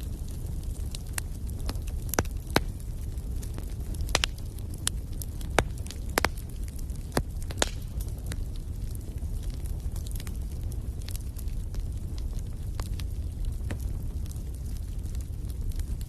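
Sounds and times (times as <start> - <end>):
low rumble of flames: 0.0 - 16.0
wood fire crackling: 0.0 - 16.0
sharp pops and snaps: 1.1 - 2.8, 4.0 - 8.1.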